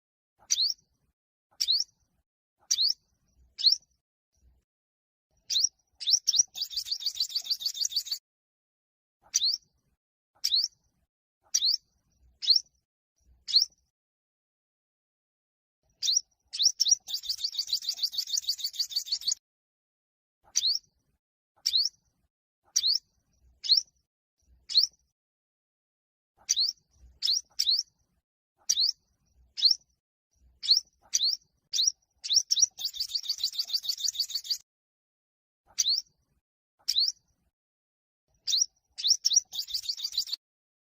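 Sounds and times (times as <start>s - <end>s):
sunbird singing: 0.5s - 0.8s, 5.5s - 8.2s, 13.5s - 13.7s, 16.0s - 19.4s, 24.7s - 24.9s, 26.5s - 27.8s, 28.7s - 29.0s, 29.6s - 29.8s, 30.6s - 34.6s, 38.4s - 40.4s.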